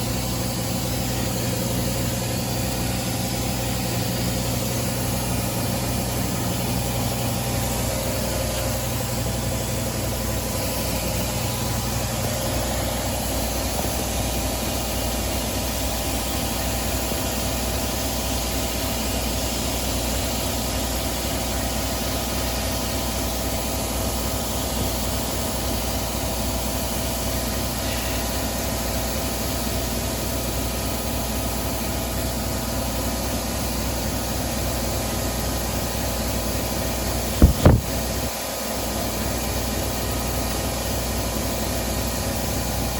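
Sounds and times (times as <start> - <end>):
lawnmower engine running: 0.0 - 17.8.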